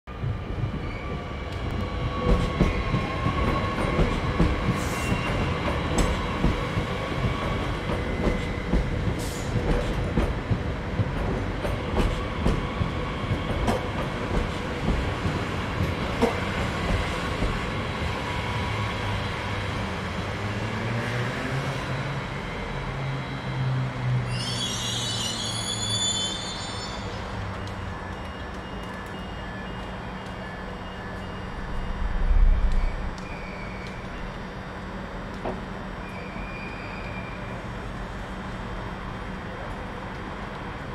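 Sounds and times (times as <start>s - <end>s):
low train hum: 0.1s - 40.9s
train wheels rumbling on rails: 0.1s - 40.9s
rail clicks: 1.4s - 17.8s, 27.0s - 34.5s, 35.2s - 36.2s.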